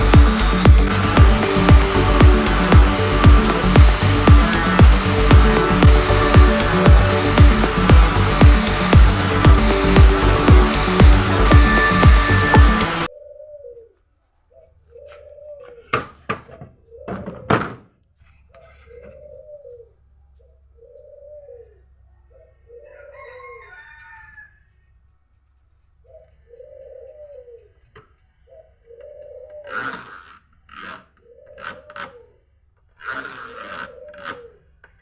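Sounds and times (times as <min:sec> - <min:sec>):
dove cooing: 0:13.1 - 0:16.0, 0:18.9 - 0:23.7, 0:26.0 - 0:30.1, 0:31.2 - 0:32.5, 0:33.6 - 0:34.8.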